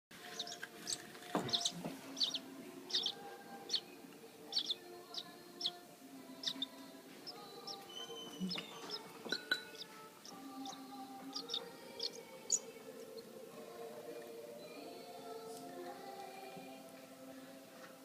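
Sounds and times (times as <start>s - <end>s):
baby bird chirping: 0.3s - 13.3s.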